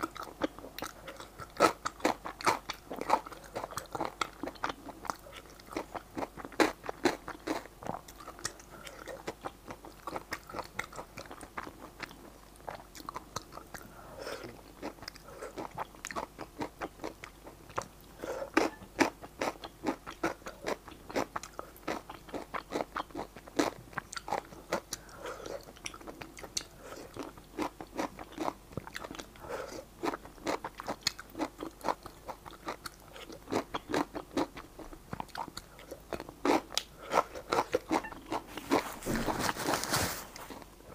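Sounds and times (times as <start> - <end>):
wet chewing and smacking: 0.0 - 39.6.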